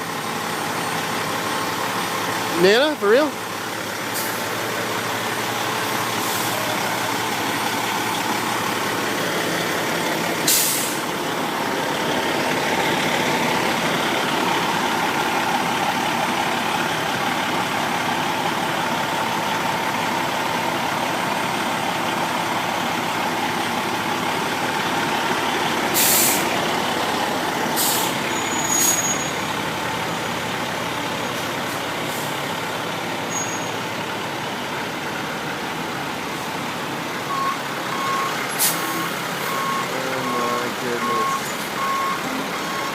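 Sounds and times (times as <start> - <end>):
diesel engine running: 0.0 - 42.9
air brakes hissing: 4.1 - 4.5, 6.2 - 6.8, 10.4 - 11.1, 25.9 - 26.5, 27.7 - 29.4, 38.5 - 39.2.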